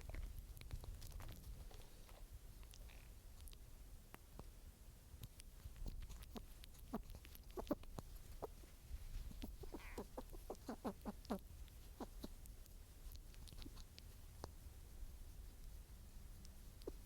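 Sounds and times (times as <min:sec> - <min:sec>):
faint outdoor rumble: 0:00.0 - 0:17.0
animal clucking softly: 0:05.8 - 0:14.6, 0:16.4 - 0:17.0.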